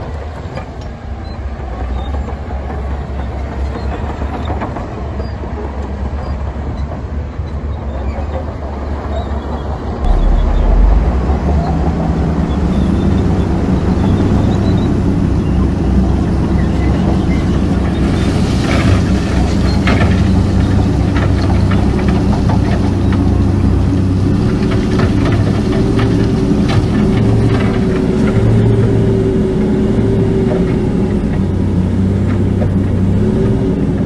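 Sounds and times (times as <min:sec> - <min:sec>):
heavy diesel engine running: 0:10.0 - 0:34.0.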